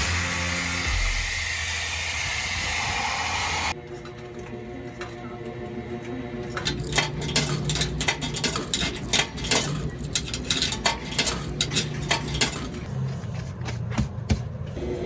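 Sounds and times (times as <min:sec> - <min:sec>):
rapid clicks and knocks: 0:06.6 - 0:14.6.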